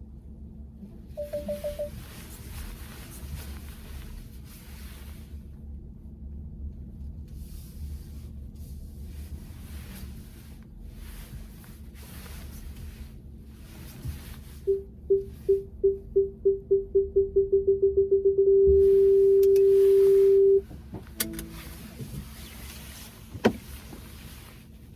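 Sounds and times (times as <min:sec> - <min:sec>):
car warning beep: 0:01.2 - 0:02.0, 0:14.7 - 0:20.6
car cabin rumble: 0:13.6 - 0:24.9.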